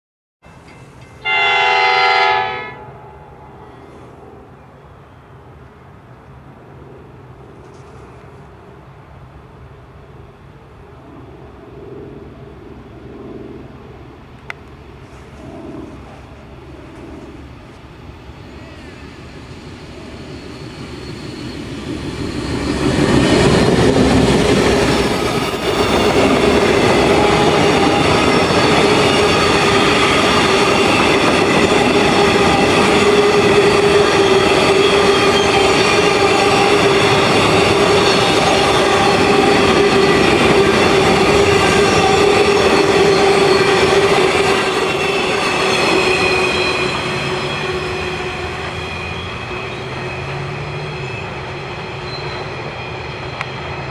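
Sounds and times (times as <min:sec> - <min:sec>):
wheels ringing on rails: 0:00.4 - 0:01.9, 0:18.0 - 0:53.9
freight train rolling past: 0:00.4 - 0:53.9.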